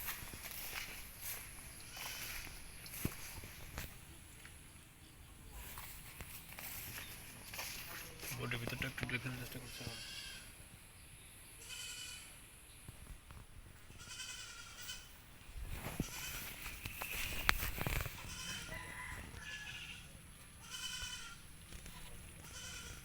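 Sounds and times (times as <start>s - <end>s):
animal bleating: 1.8s - 2.6s, 9.3s - 10.6s, 11.6s - 12.4s, 13.9s - 15.2s, 15.8s - 17.4s, 18.1s - 23.0s
rustling: 15.6s - 19.4s.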